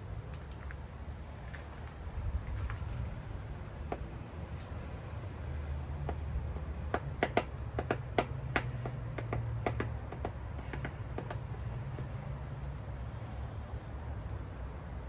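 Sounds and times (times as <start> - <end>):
woodpecker tapping: 3.8 - 4.2, 6.0 - 13.0.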